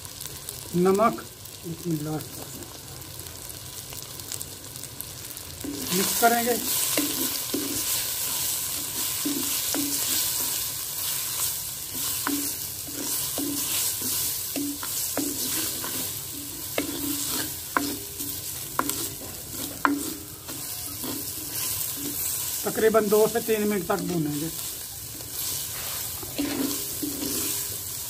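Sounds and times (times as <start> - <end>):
vegetables sizzling in hot oil: 0.0 - 28.0
wooden spoon scraping a pot: 5.6 - 22.7, 24.6 - 28.0.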